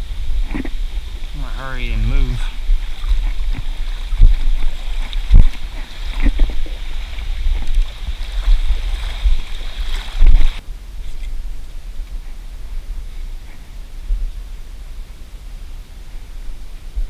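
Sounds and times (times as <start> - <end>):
wading through water: 0.0 - 11.4
wind on microphone: 0.0 - 17.0.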